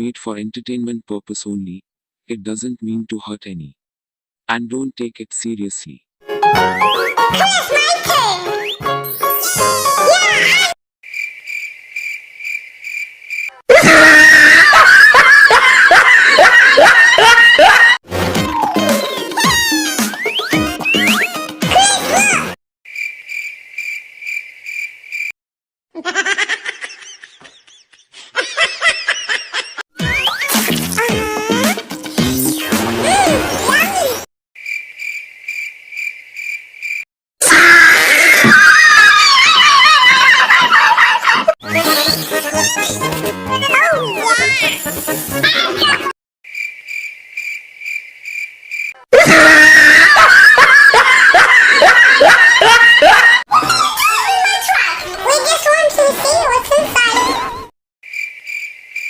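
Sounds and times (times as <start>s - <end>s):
music: 6.2s - 10.6s, 18.1s - 22.5s, 30.0s - 33.8s, 41.6s - 46.0s
high-pitched cartoon voices: 7.3s - 8.7s, 9.3s - 10.8s, 18.5s - 22.6s, 30.0s - 31.8s, 33.0s - 34.3s, 41.6s - 46.1s, 53.5s - 57.7s
cricket chirping: 11.0s - 13.6s, 22.9s - 25.3s, 34.6s - 37.0s, 46.5s - 49.0s, 58.0s - 59.0s
loud screaming: 13.7s - 16.9s, 37.4s - 40.5s, 49.1s - 52.4s.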